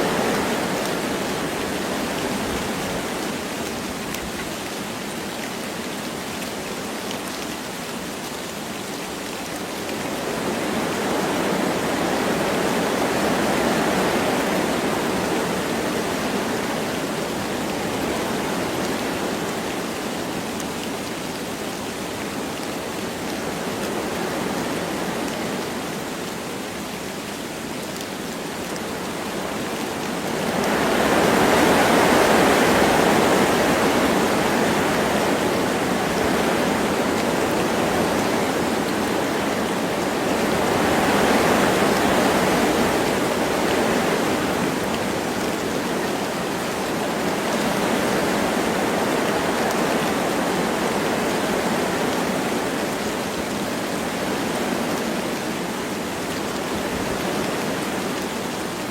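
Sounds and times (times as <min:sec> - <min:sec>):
light rain falling: 0:00.0 - 0:58.9
wind through forest trees: 0:00.0 - 0:58.9.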